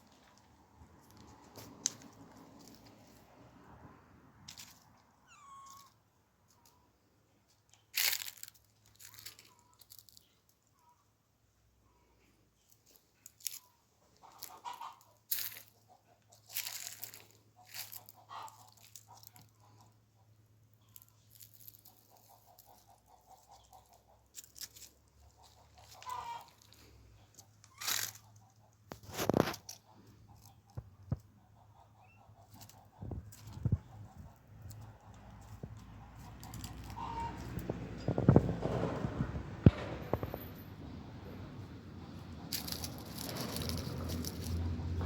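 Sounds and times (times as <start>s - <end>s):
rustling: 7.5s - 10.6s, 15.3s - 15.8s, 16.4s - 19.9s, 20.8s - 30.8s, 32.4s - 45.0s
crunching: 7.7s - 10.5s, 12.8s - 15.8s, 16.4s - 19.8s, 20.8s - 30.8s, 41.6s - 45.0s.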